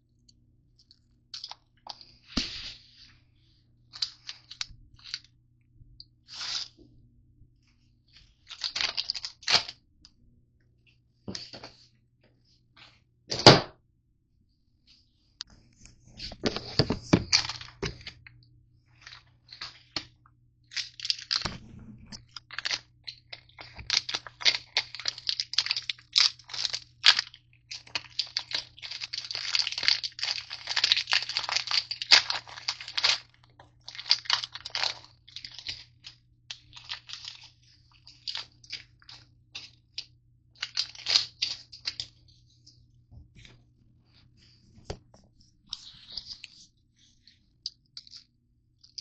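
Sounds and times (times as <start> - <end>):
granola bar wrappers crinkling: 1.3 - 2.8, 3.9 - 5.3, 8.2 - 9.8, 16.2 - 18.3, 19.0 - 21.6, 22.2 - 42.4, 47.6 - 49.0.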